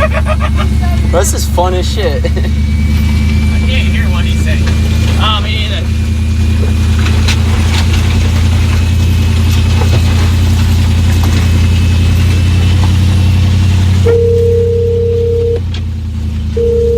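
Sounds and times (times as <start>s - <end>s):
truck engine running: 0.0s - 16.9s
steady electronic beep: 1.1s - 4.6s, 14.0s - 15.6s, 16.6s - 16.9s.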